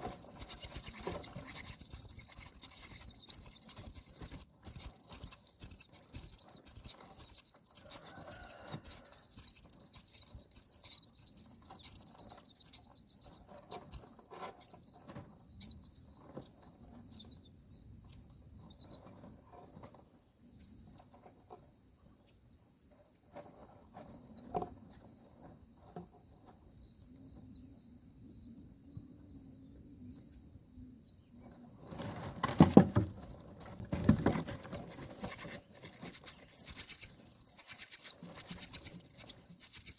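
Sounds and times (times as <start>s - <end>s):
rustling and thumps in nest: 0.0s - 5.2s, 31.8s - 37.0s
nestlings chirping: 0.0s - 39.9s.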